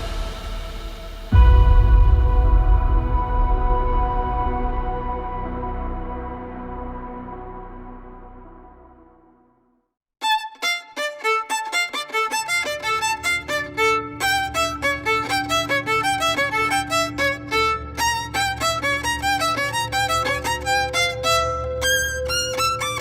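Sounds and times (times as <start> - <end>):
steady low bass: 0.0 - 9.4
ambient tone: 0.0 - 9.6
fast violin tune: 10.2 - 23.0.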